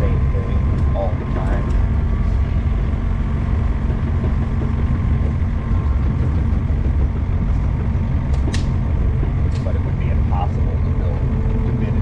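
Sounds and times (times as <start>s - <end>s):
mini excavator engine running: 0.0s - 12.0s
sharp click: 8.3s - 8.8s.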